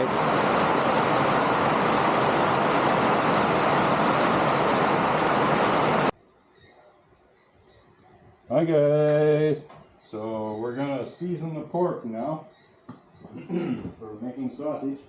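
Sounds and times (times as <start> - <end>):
heavy rain on a roof: 0.0 - 6.1.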